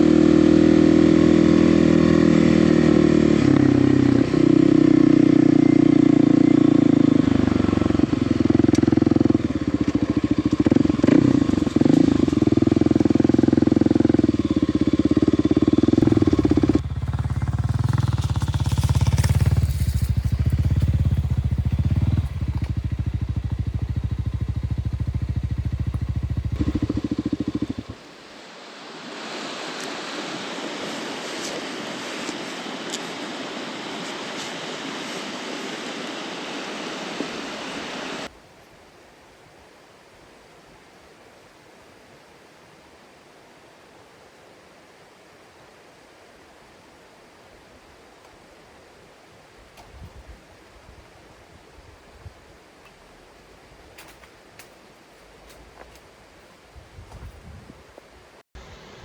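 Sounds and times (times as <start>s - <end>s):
motorcycle engine running: 0.0s - 28.1s
steady hiss: 16.0s - 59.0s.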